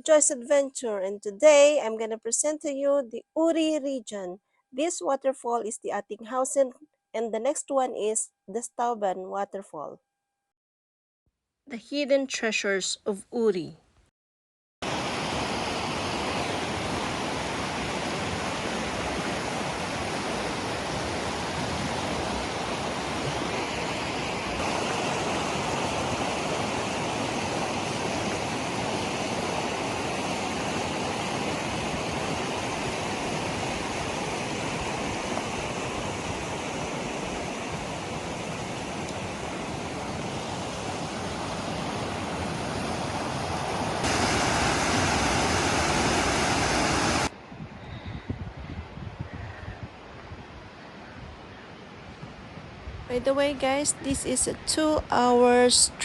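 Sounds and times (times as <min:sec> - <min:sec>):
waterfall rushing: 0:14.8 - 0:47.3.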